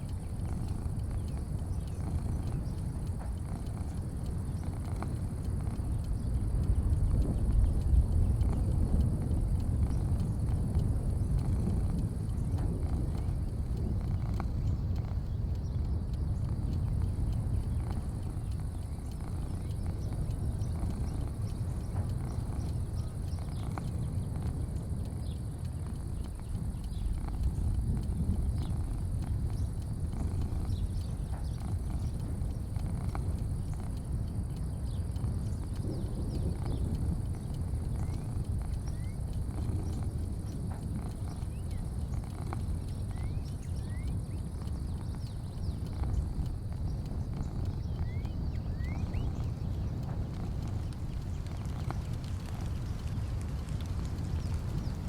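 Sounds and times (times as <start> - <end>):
faint clicks: 0.0 - 55.0
high insect drone: 0.0 - 55.0
low rumble: 0.0 - 55.0
rising bird chirps: 47.4 - 49.7.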